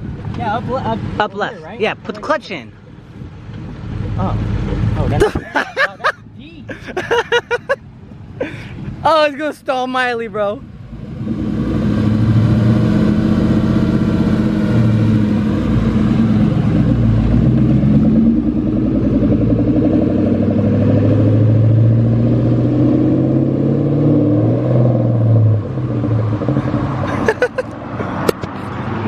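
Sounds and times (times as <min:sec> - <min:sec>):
car engine revving: 0:02.5 - 0:09.2, 0:10.4 - 0:29.0.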